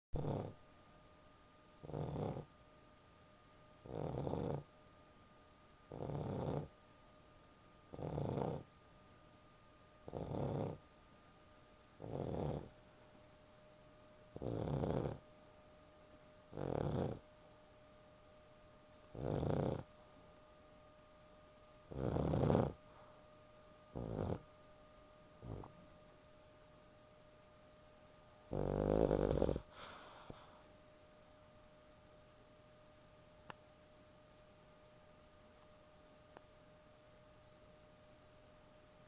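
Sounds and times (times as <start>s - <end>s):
dog snoring: 0.2s - 0.6s, 1.8s - 2.5s, 3.8s - 4.7s, 5.9s - 6.8s, 7.9s - 8.7s, 10.0s - 10.8s, 12.0s - 12.8s, 14.3s - 15.2s, 16.5s - 17.2s, 19.1s - 19.9s, 21.9s - 23.2s, 23.9s - 24.5s, 25.4s - 25.8s, 28.4s - 30.7s.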